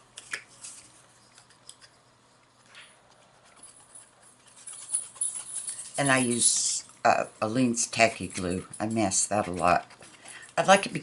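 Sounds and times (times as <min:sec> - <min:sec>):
paper rustling: 0:00.0 - 0:06.8.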